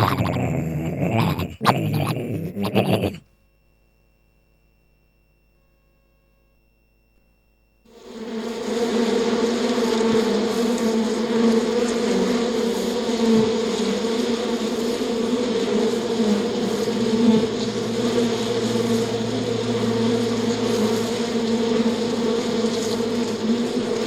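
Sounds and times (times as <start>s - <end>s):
swarm of insects buzzing: 0.0s - 3.2s, 7.9s - 24.0s.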